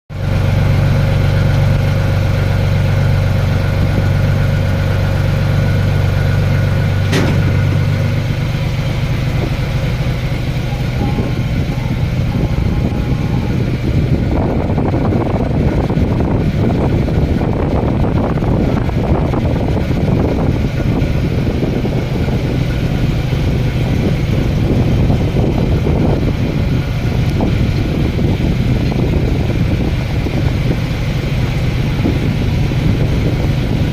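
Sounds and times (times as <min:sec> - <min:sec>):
machinery humming: 0:00.2 - 0:33.9
sharp click: 0:07.1 - 0:07.8.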